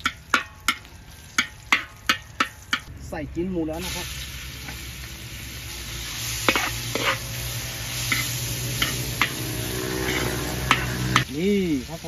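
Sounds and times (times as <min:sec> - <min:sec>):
meat sizzling in hot oil: 0:00.0 - 0:02.9, 0:03.7 - 0:12.0
metal spatula scraping wok: 0:03.8 - 0:11.4.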